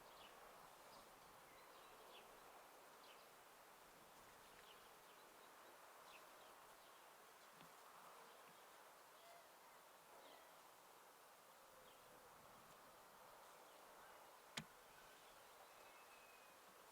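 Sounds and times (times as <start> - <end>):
distant bird chirps: 13.7 - 16.9.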